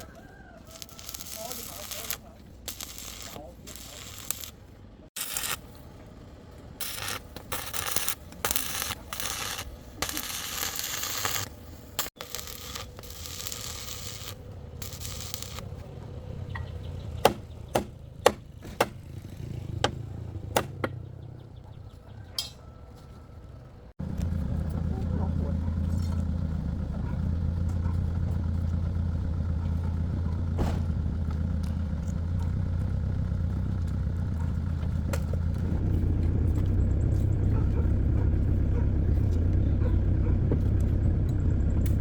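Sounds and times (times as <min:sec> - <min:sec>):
sharp knocks: 0:17.2 - 0:19.0.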